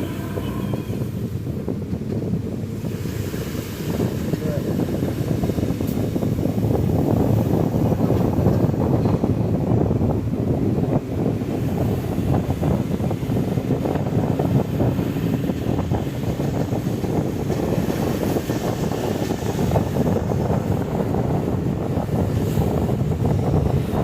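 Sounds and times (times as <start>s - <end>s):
bus engine and road rumble: 0.0s - 24.0s
wind buffeting microphone: 0.0s - 24.0s.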